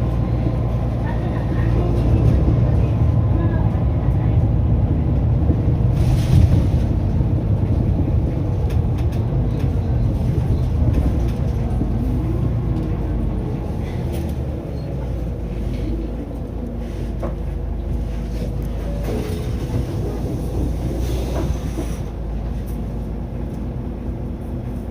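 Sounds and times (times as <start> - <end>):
bus diesel engine running: 0.0 - 24.9.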